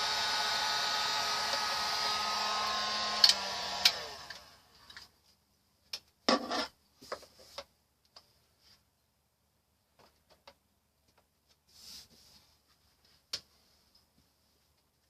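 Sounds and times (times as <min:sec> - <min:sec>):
electric blower whining: 0:00.0 - 0:04.8.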